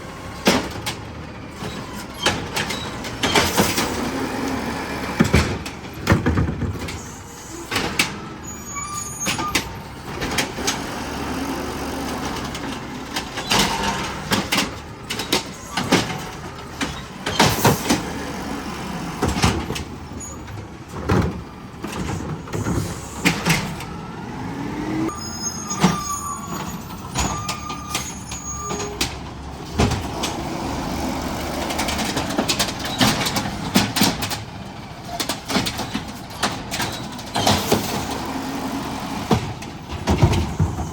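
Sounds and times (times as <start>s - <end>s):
garbage truck engine running: 0.0s - 40.9s
short high squeals: 8.4s - 9.6s, 25.1s - 29.0s
sharp clanks and bangs: 9.2s - 18.5s, 25.7s - 40.9s.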